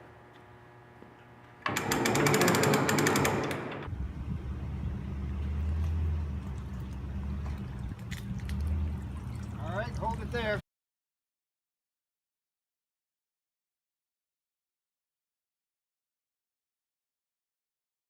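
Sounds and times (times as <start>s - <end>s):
boat engine starting and idling: 1.7s - 10.6s.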